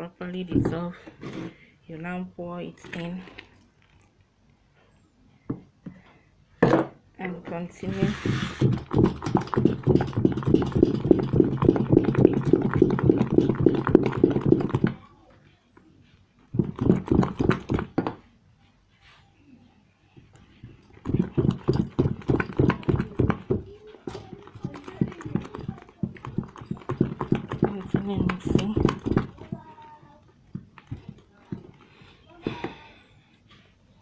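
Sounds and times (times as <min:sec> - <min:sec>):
liquid soap being stirred: 0:07.3 - 0:15.0, 0:16.5 - 0:18.2, 0:20.2 - 0:32.7.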